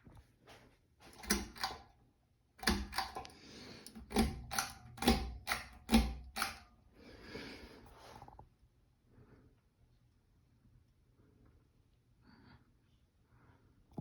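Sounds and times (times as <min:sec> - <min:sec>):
sharp clicks and knocks: 0:01.2 - 0:01.9, 0:02.6 - 0:06.6.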